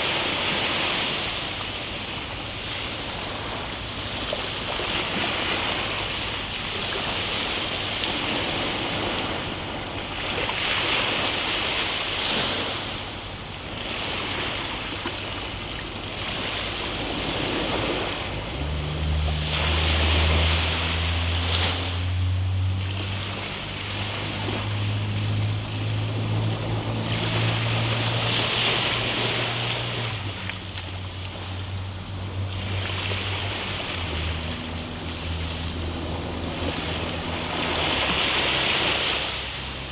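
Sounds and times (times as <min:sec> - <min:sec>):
ocean waves breaking: 0:00.0 - 0:39.9
low steady hum: 0:16.4 - 0:39.9.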